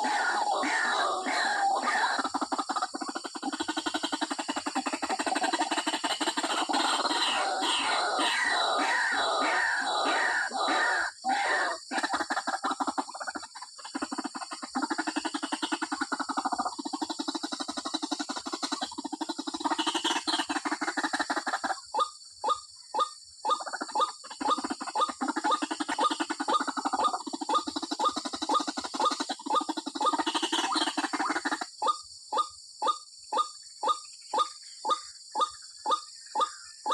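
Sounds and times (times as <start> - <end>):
waterhen calling: 0.0 - 13.4.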